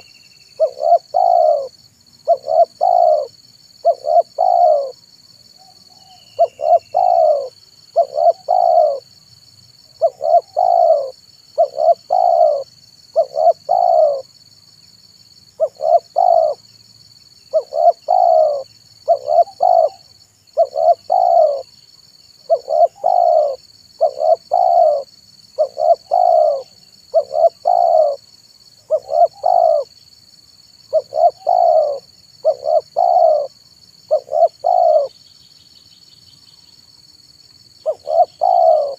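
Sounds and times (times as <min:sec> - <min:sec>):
dove cooing: 0:00.6 - 0:05.0, 0:05.6 - 0:09.0, 0:10.0 - 0:14.3, 0:15.6 - 0:16.6, 0:17.5 - 0:21.7, 0:22.4 - 0:28.2, 0:28.8 - 0:29.9, 0:30.9 - 0:35.1, 0:37.8 - 0:38.9.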